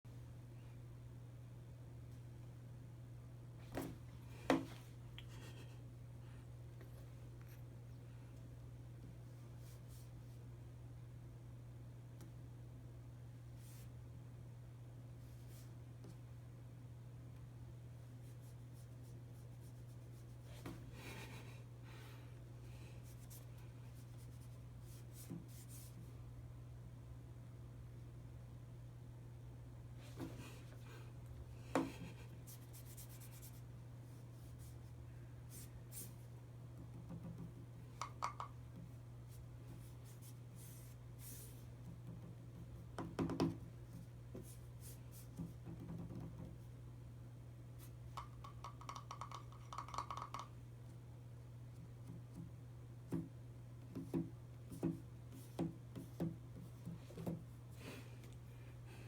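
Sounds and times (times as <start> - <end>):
faint scratching and tapping: 23.0 - 26.1, 35.6 - 46.8, 47.8 - 51.0, 51.7 - 57.6
light scratching and tapping: 48.1 - 50.5.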